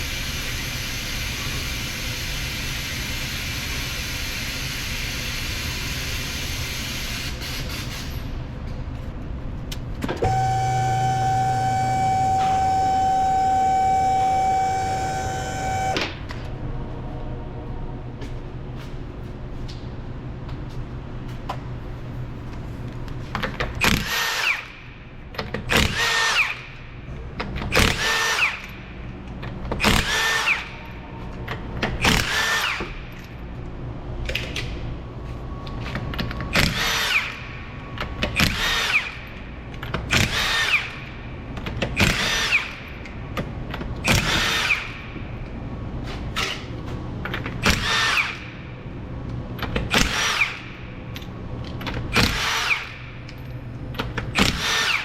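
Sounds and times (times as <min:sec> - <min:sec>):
power tool bursts: 0:10.2 - 0:16.2.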